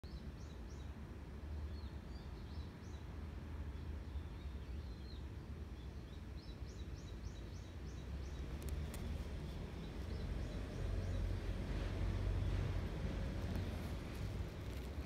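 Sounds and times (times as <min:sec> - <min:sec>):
small birds chirping: 0:01.7 - 0:15.0
steady low rumble: 0:08.0 - 0:15.0.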